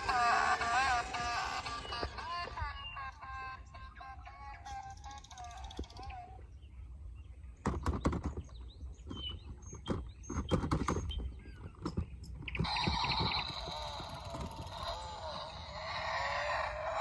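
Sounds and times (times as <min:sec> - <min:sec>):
hissing whirr: 0:00.0 - 0:02.8
irregular clicks and knocks: 0:07.6 - 0:12.7.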